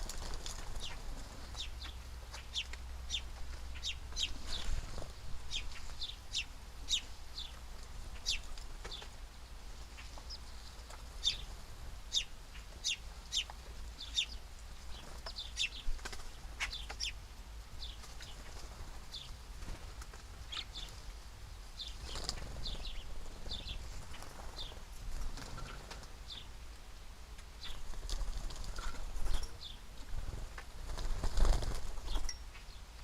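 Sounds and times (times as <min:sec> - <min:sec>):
wing flutters: 0:00.0 - 0:01.7, 0:21.9 - 0:26.2, 0:27.7 - 0:32.4
small birds chirping: 0:00.0 - 0:26.6, 0:27.4 - 0:33.0.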